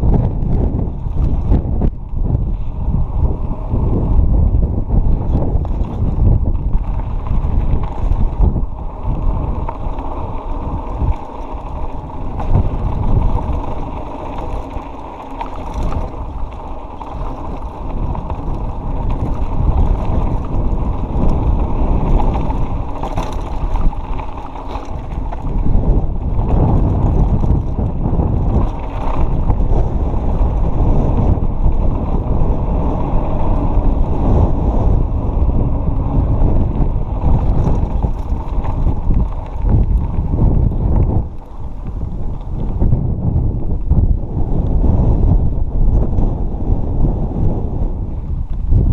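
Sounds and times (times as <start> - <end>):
mountain bike rolling on dirt: 0.0 - 48.9
wind buffeting microphone: 0.0 - 48.9
bike knocking over rough ground: 5.1 - 32.4, 35.3 - 43.0.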